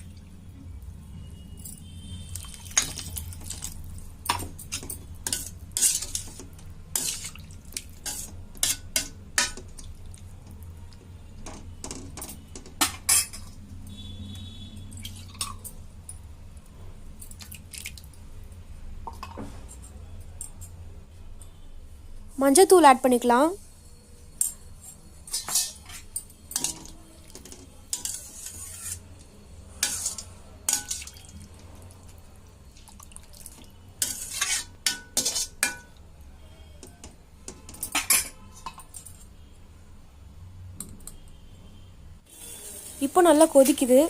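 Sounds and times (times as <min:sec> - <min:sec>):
utensils clinking against pan: 0:02.4 - 0:09.9, 0:11.4 - 0:13.6, 0:24.4 - 0:29.1, 0:29.7 - 0:31.4, 0:33.5 - 0:36.0, 0:36.8 - 0:39.3.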